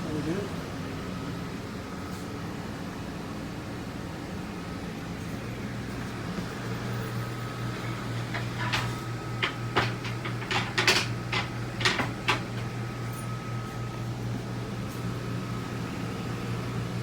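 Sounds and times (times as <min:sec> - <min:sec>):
cabinet doors clicking and knocking: 0:08.3 - 0:12.7.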